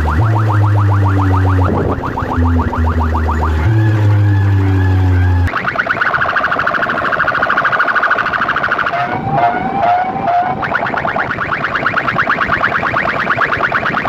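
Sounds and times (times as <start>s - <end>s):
low hum: 0.0s - 5.5s
lower sliding tone: 0.0s - 5.5s, 8.8s - 11.3s
rising siren warble: 0.0s - 14.0s.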